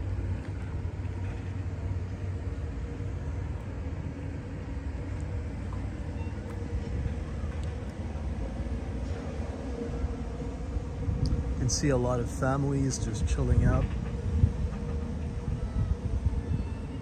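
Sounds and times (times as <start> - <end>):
faint steady hum: 0.0 - 17.0
low outdoor rumble: 0.0 - 17.0.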